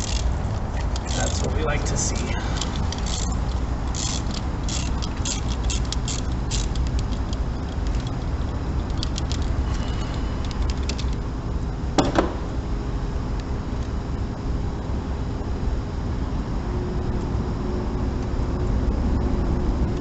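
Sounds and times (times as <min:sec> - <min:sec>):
socket wrench ratchet clicking: 0:00.0 - 0:11.2
steady low rumble: 0:00.0 - 0:20.0.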